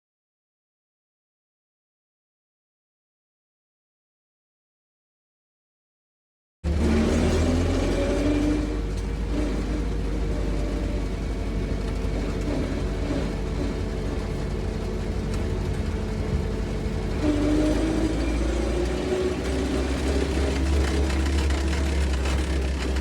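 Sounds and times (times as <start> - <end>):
tractor diesel engine running: 6.7 - 23.0.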